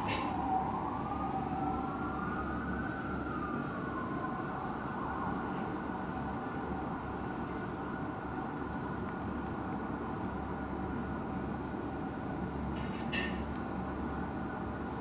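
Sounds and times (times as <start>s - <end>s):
fire truck sirens wailing: 0.0s - 9.1s.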